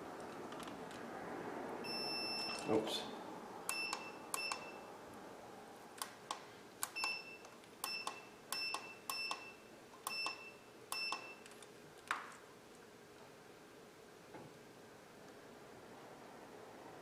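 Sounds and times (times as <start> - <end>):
multimeter beeps: 1.9 - 2.7, 3.7 - 4.8, 6.9 - 11.5.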